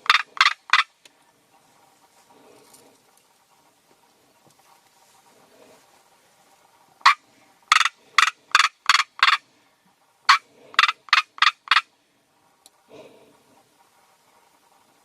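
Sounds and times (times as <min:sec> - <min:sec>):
bird harsh scratchy calls: 0:00.0 - 0:01.0, 0:07.0 - 0:09.4, 0:10.2 - 0:11.9.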